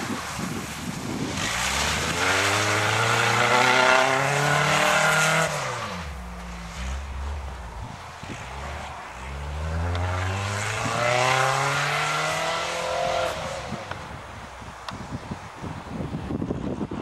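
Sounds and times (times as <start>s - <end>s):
car engine revving: 1.2s - 14.5s.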